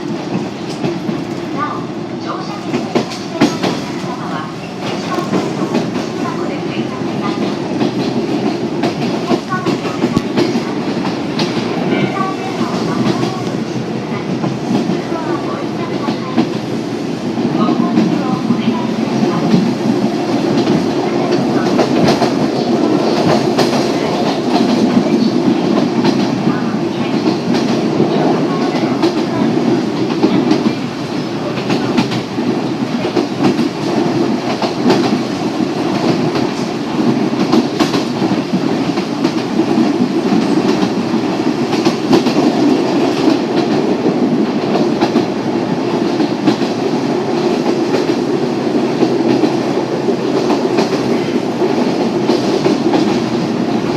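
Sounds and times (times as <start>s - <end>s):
wheels clacking over rail joints: 0.0s - 6.5s
train rumble inside carriage: 0.0s - 53.9s.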